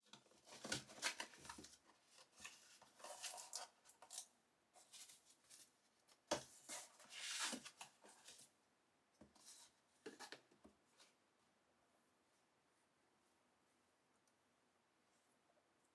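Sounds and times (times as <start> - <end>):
packaging rustling and scraping: 0.4 - 4.2, 6.5 - 8.5.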